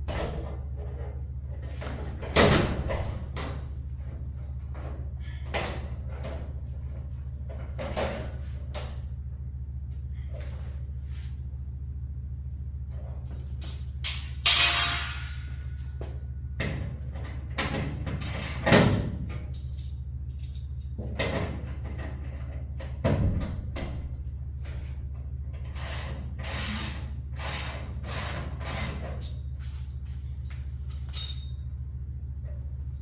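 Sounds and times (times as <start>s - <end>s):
steady low hum: 0.0s - 33.0s
metal clanks and scrapes of tools: 30.9s - 31.7s.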